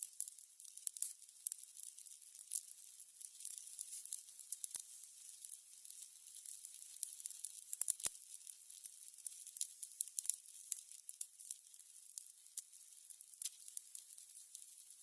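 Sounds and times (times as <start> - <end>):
candles crackling: 0.2 - 15.0.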